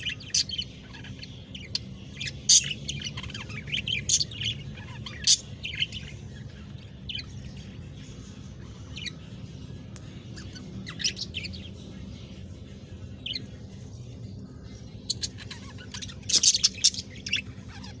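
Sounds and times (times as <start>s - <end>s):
budgerigars chirping: 0.0s - 9.4s, 10.2s - 13.7s, 14.4s - 18.0s
low steady hum: 0.0s - 18.0s.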